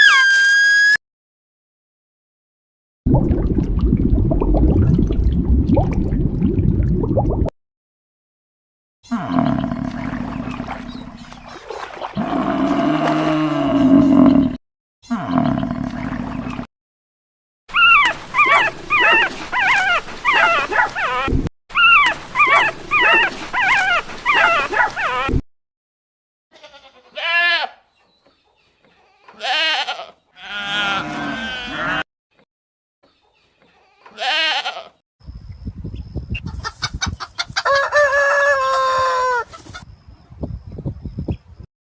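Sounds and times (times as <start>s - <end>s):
animal yelps: 17.7s - 25.3s
goat or sheep bleats: 26.5s - 27.8s, 29.1s - 32.0s, 34.0s - 35.0s.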